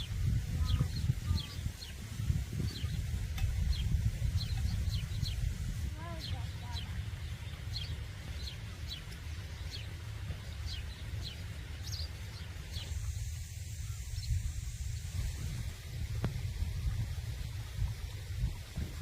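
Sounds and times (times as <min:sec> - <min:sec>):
small bird chirping: 0:00.0 - 0:14.5
steady low rumble: 0:00.0 - 0:19.0.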